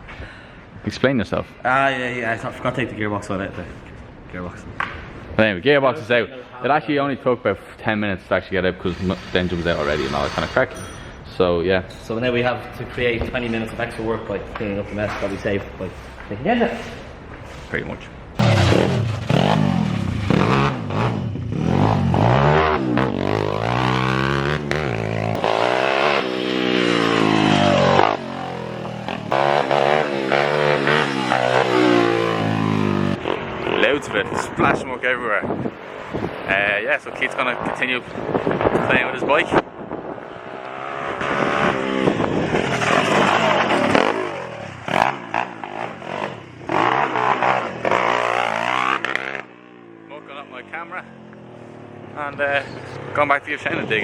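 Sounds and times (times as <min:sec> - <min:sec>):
small motorcycle engine revving: 0:18.4 - 0:34.3, 0:40.4 - 0:50.1.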